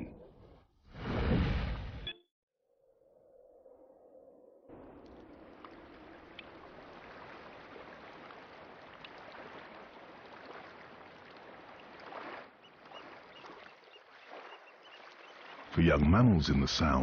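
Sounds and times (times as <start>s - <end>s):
water splashing and gurgling: 4.7s - 17.0s
water drips: 4.8s - 15.8s.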